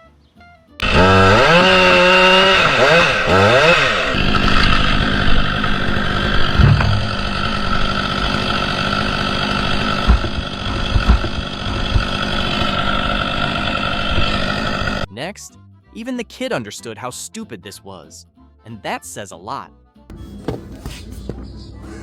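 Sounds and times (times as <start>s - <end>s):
chainsaw revving and running: 0.8s - 15.1s.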